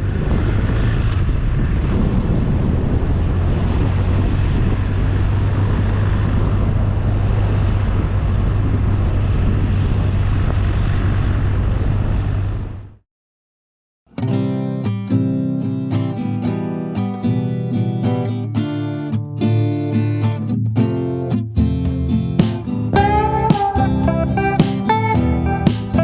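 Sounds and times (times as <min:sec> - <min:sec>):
motorcycle engine drone: 0:00.0 - 0:12.9
wind noise: 0:00.0 - 0:12.9.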